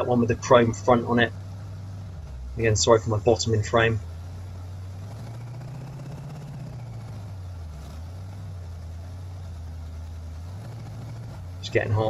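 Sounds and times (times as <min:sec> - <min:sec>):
engine running at fast idle: 0:00.0 - 0:12.0.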